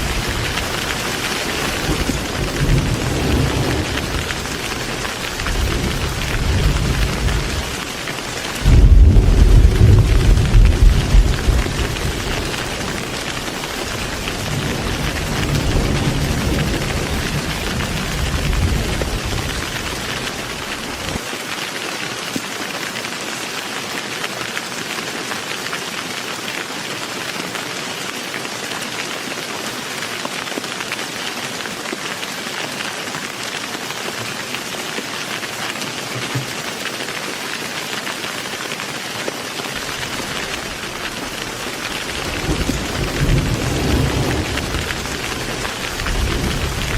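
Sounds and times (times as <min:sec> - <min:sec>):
low rumble of thunder: 0:00.0 - 0:07.9, 0:08.5 - 0:21.2, 0:39.9 - 0:46.9
heavy rain falling: 0:00.0 - 0:46.9.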